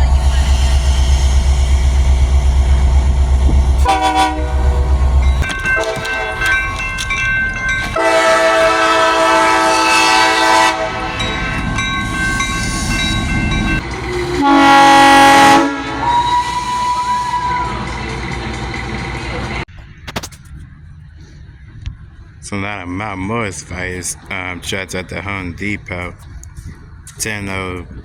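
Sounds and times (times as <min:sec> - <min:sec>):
low engine rumble: 0:00.0 - 0:28.0
multi-note air horn blasts: 0:03.8 - 0:05.0, 0:08.0 - 0:11.2, 0:14.3 - 0:17.8.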